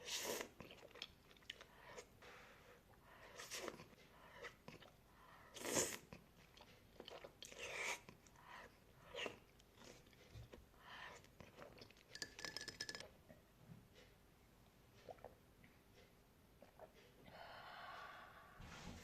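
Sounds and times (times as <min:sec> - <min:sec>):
person chewing crunchy food: 0:00.2 - 0:02.1, 0:05.6 - 0:13.0.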